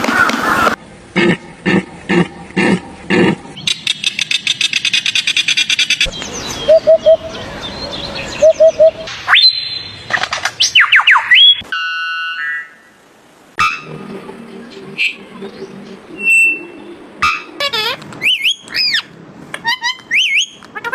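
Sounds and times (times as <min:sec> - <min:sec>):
sharp sweeping whistles: 0:08.5 - 0:10.0, 0:16.2 - 0:17.4, 0:18.2 - 0:19.1.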